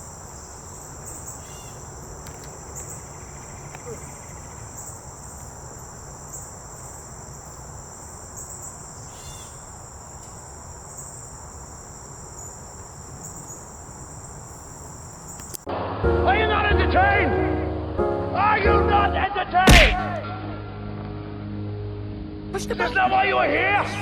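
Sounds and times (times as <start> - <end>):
insects trilling: 0.0 - 15.7.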